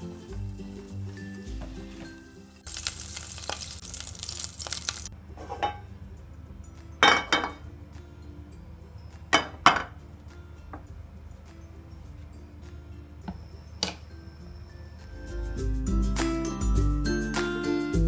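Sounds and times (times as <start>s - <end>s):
food sizzling in a pan: 0.0s - 5.8s
background music: 0.0s - 18.0s
metal utensil clinking on pan: 5.4s - 5.9s, 7.0s - 7.7s, 9.2s - 10.0s, 13.2s - 14.2s.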